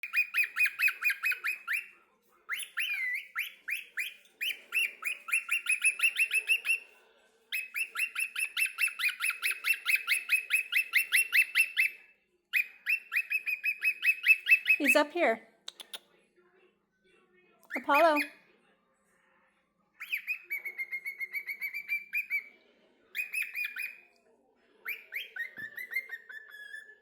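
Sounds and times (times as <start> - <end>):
cockatiel chirping: 0.0 - 6.9, 7.5 - 15.1, 17.7 - 18.4, 20.0 - 22.5, 23.1 - 24.1, 24.8 - 27.0.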